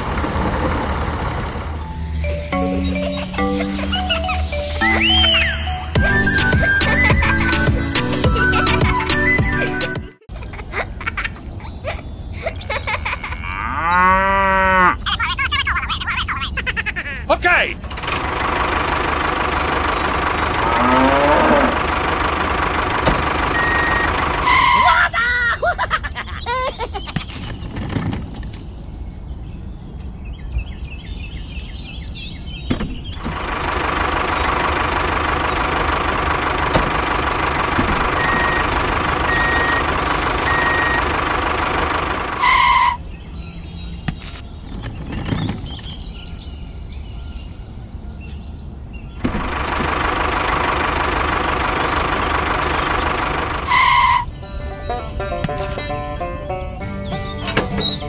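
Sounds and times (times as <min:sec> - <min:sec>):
tractor engine running: 0:00.0 - 0:10.3, 0:17.8 - 0:25.0, 0:33.0 - 0:43.0, 0:44.2 - 0:46.1, 0:49.2 - 0:58.0
birds chirping: 0:00.7 - 0:58.0.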